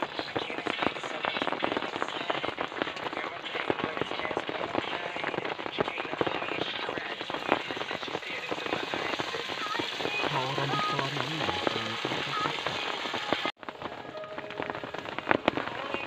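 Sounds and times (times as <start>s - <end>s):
heavy rain patter: 0.0s - 16.0s.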